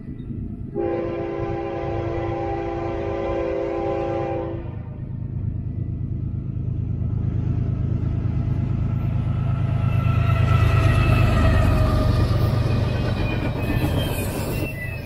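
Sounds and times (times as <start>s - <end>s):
diesel locomotive engine rumble: 0.0s - 15.0s
train horn: 0.7s - 5.1s.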